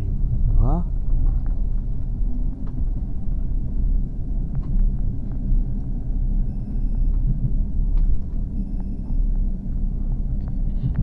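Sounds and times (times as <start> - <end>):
train interior low rumble: 0.0 - 11.0.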